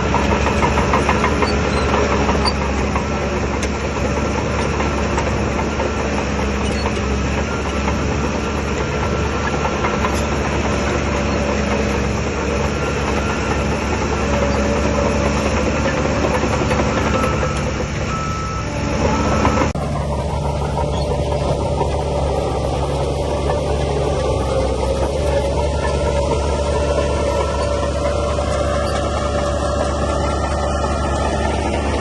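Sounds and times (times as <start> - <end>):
diesel engine under load: 0.0 - 32.0.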